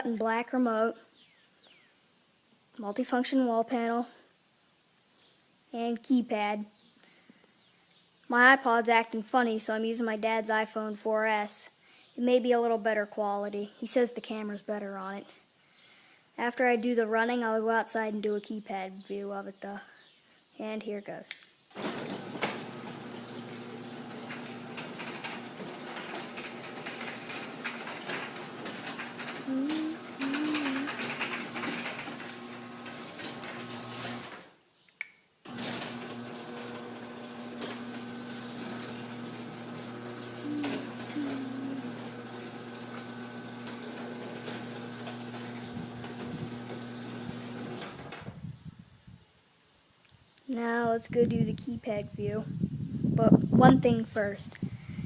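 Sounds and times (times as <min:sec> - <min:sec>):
garage door opener motor hum: 0:21.7 - 0:34.5, 0:35.4 - 0:48.4.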